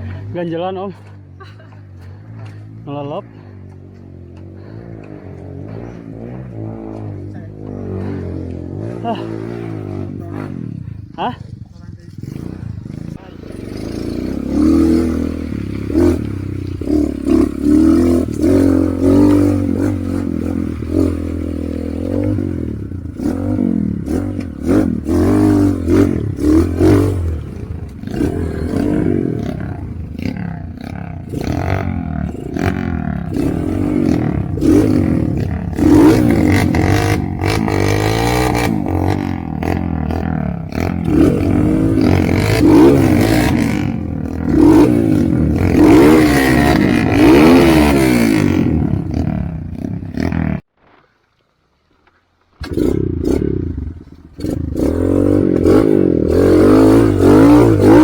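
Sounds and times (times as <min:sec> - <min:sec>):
motorcycle engine revving: 0:00.0 - 0:50.7, 0:52.5 - 0:58.0.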